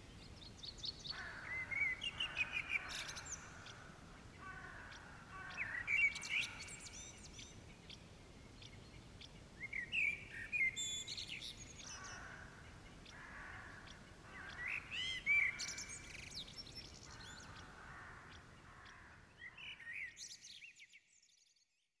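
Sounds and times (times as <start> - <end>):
birds chirping and singing: 0.4 - 8.0.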